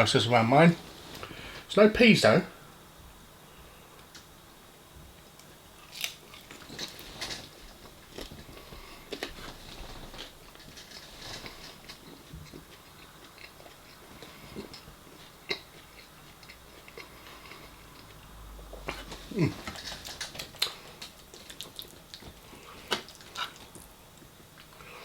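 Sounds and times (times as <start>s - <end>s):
person chewing food: 5.3s - 25.0s.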